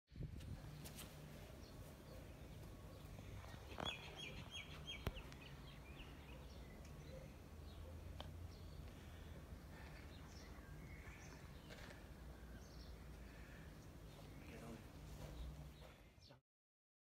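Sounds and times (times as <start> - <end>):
small bird chirping: 0.8 - 9.0.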